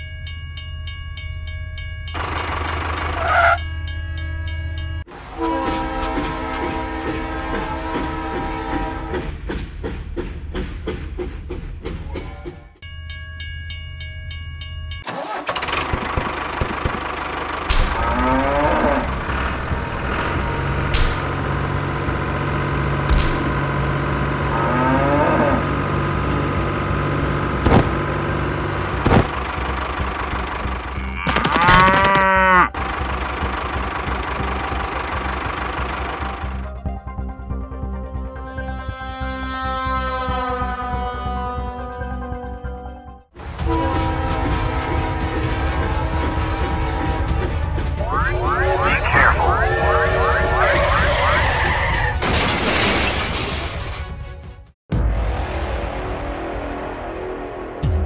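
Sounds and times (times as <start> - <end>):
vehicle engine running: 2.1 - 3.7, 15.4 - 31.2, 32.8 - 36.9.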